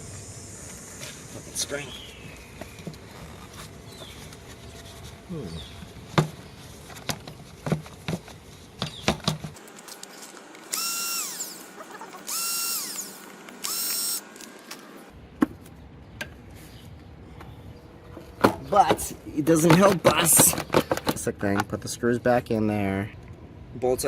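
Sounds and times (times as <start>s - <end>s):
power drill whining: 10.7s - 14.3s.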